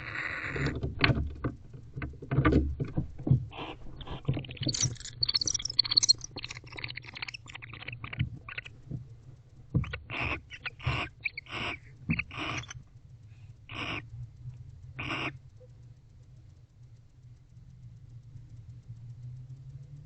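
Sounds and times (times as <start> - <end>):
low steady hum: 0.0 - 20.0
talons scratching on wood: 0.1 - 12.8.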